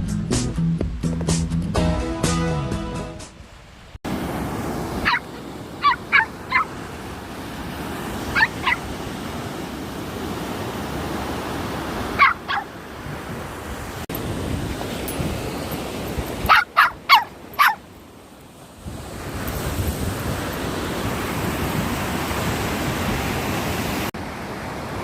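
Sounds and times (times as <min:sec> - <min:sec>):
wind: 0:00.0 - 0:25.0
surf rushing: 0:04.0 - 0:25.0
small dog yipping: 0:05.0 - 0:06.8, 0:08.3 - 0:08.9, 0:12.2 - 0:12.7, 0:16.4 - 0:17.8.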